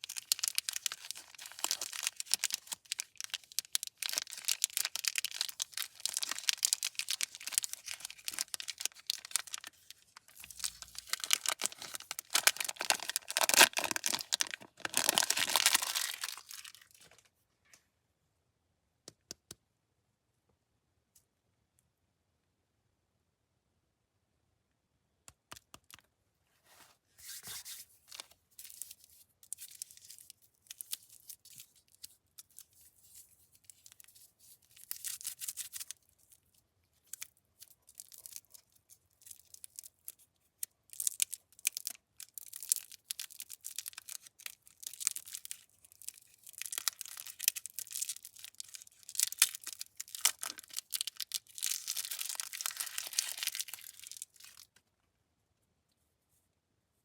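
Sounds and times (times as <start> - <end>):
candy wrappers crinkling: 0.0 - 17.2, 28.1 - 54.8.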